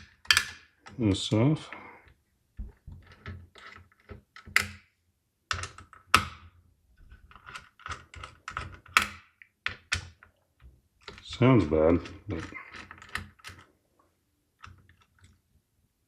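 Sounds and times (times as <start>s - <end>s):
small hard parts clicking: 2.6s - 4.8s, 7.0s - 10.4s, 11.0s - 13.8s.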